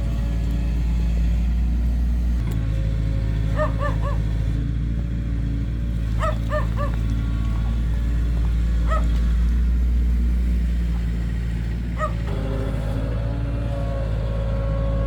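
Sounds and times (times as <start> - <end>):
heavy diesel engine running: 0.0 - 15.0
dog barking: 3.5 - 4.2, 6.2 - 7.0, 8.8 - 9.2, 12.0 - 12.3.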